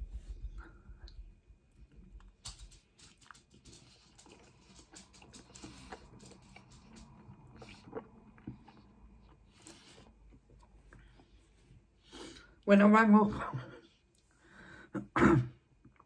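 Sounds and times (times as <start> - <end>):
faint chewing with mouth clicks: 0.8 - 12.4.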